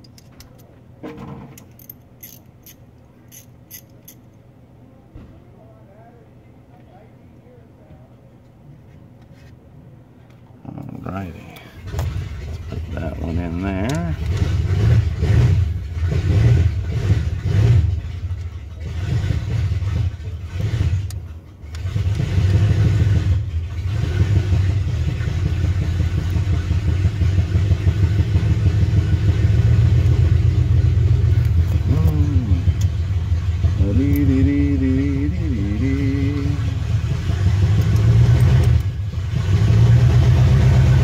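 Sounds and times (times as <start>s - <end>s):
car engine running: 10.7s - 41.0s.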